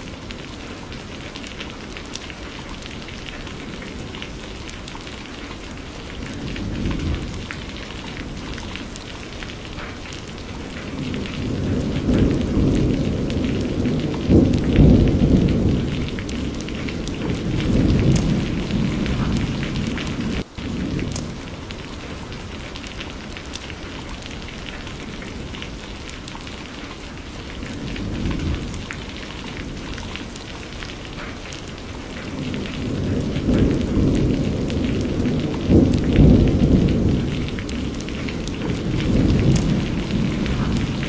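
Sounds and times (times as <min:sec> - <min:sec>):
steady rain: 0:00.0 - 0:41.0
thunder rolling: 0:05.6 - 0:23.8, 0:27.4 - 0:41.0.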